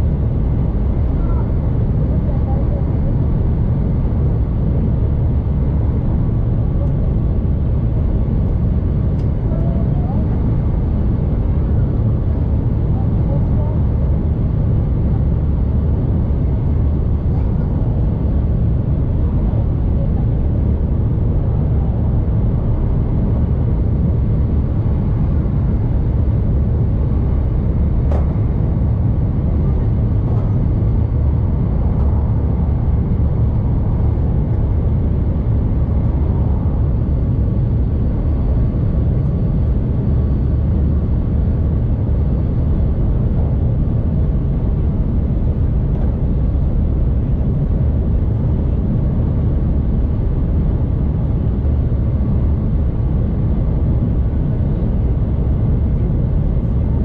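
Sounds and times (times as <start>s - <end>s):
train cabin rumble: 24.3s - 39.7s.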